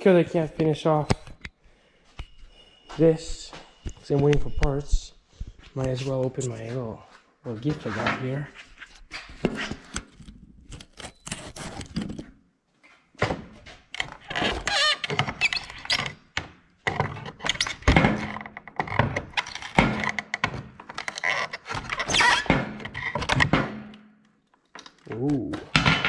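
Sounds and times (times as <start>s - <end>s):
packaging rustling and tearing: 10.1s - 12.2s.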